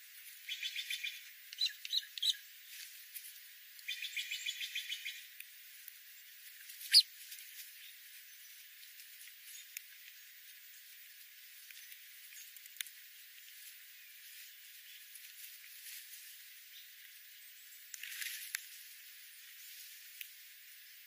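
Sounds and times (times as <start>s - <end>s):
bird chirping: 0.4s - 2.5s, 3.8s - 5.3s, 6.5s - 7.1s.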